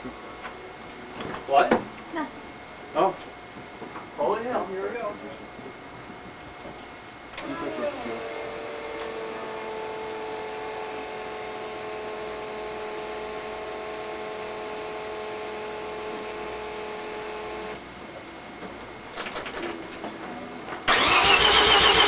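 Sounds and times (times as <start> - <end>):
high electric motor whine: 6.6 - 18.0.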